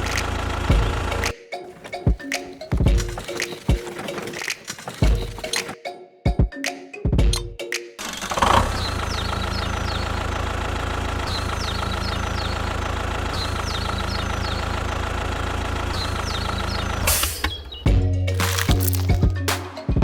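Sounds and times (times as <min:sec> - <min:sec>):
engine idling: 0:00.0 - 0:01.3, 0:08.2 - 0:17.2.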